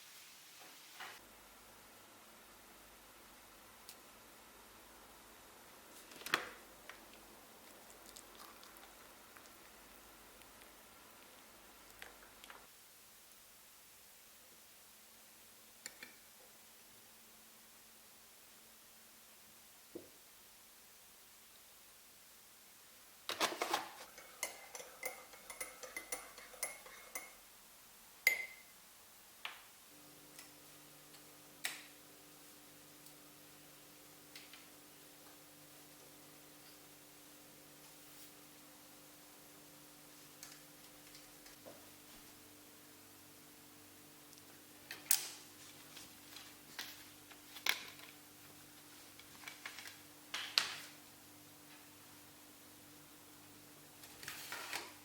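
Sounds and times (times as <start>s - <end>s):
faint steady hum: 0.0s - 55.0s
cutlery clinking against crockery: 23.4s - 27.4s.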